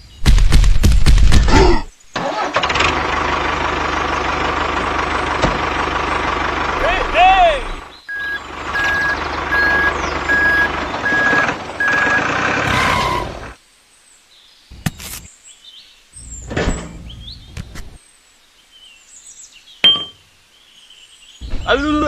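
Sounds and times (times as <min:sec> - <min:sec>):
engine running: 0:02.2 - 0:13.6
reversing beeper beeping: 0:08.1 - 0:12.3.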